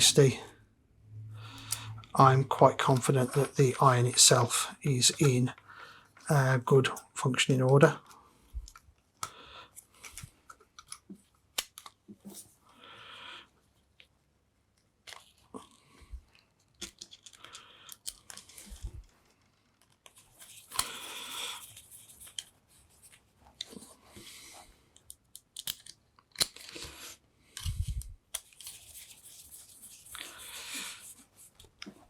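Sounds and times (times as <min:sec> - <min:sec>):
clicks and knocks of small parts: 0:08.6 - 0:12.2, 0:16.6 - 0:21.0, 0:25.0 - 0:30.2.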